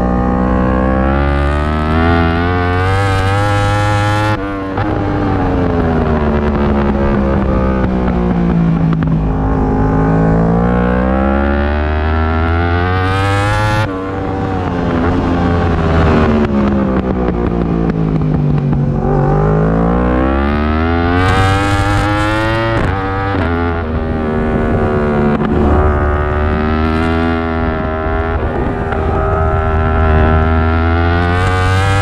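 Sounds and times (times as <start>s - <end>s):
racing motorcycle engine revving: 0.0s - 32.0s
wind rush: 4.8s - 11.4s, 21.5s - 31.9s.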